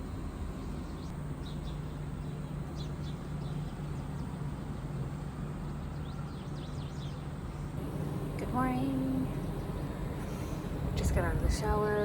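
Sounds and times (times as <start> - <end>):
steady low hum: 0.0 - 12.0
small birds chirping: 0.6 - 11.6.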